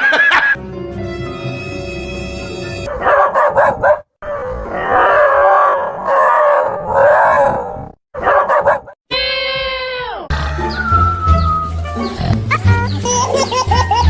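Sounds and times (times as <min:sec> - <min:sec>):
dogs barking: 0:02.8 - 0:04.1, 0:04.8 - 0:09.0.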